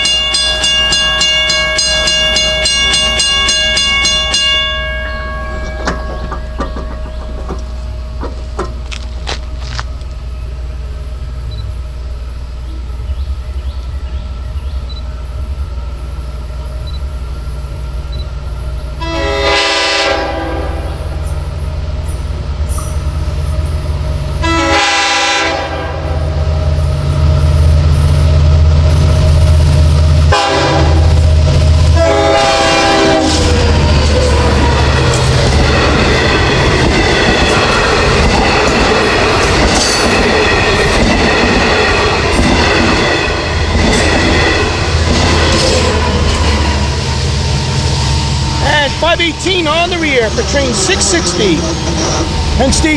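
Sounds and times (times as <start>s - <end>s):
diesel locomotive engine rumble: 0.0s - 52.9s
wheel-on-rail clatter: 5.5s - 10.2s
locomotive air horn: 19.0s - 21.1s, 24.4s - 26.3s, 30.3s - 35.2s.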